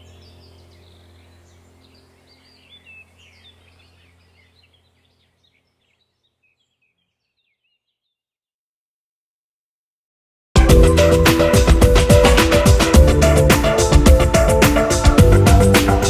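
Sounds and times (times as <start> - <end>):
low steady hum: 0.0 - 6.6
faint birds chirping: 0.0 - 8.4.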